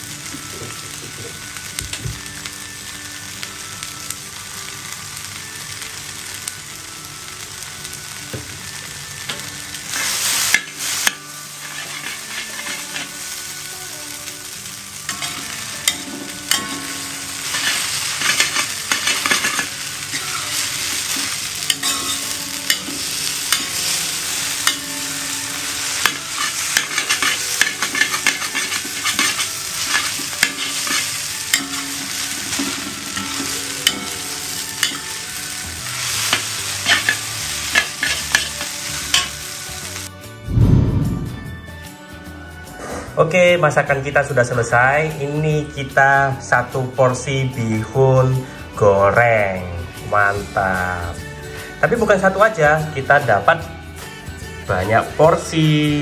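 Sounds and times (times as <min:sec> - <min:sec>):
oil sizzling in a pan: 0:00.0 - 0:40.6
spatula scraping a pan: 0:09.9 - 0:13.7, 0:15.0 - 0:40.1.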